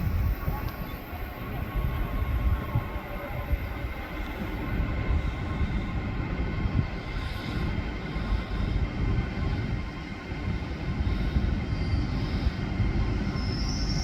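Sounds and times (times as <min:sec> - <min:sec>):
faint steady whine: 0:00.0 - 0:14.0
train wheels rumbling: 0:00.0 - 0:14.0.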